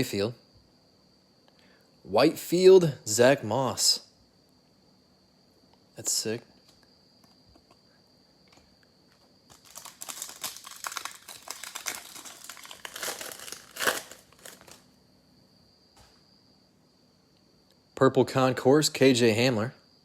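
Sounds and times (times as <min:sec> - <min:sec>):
foil wrapper crinkling and tearing: 0:09.5 - 0:14.9.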